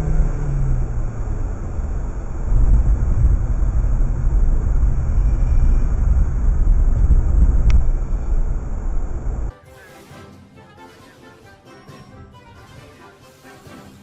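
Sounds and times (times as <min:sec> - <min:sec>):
car engine and road noise: 0:00.0 - 0:09.5.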